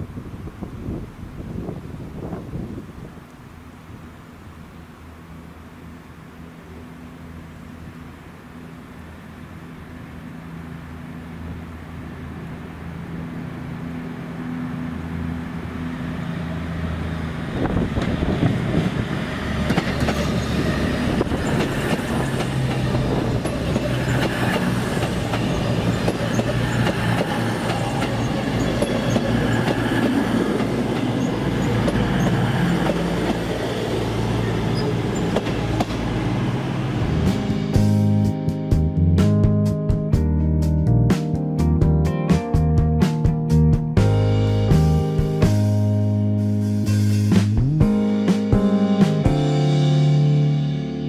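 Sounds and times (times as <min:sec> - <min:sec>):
train wheels rumbling and clattering: 0:17.4 - 0:37.6.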